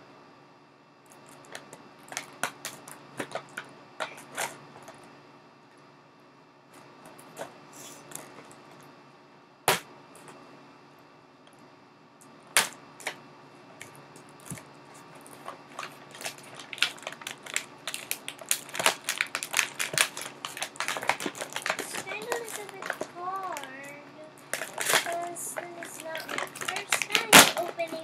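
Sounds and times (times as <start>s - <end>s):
plastic toy pieces clicking: 16.2s - 23.8s, 24.5s - 28.0s.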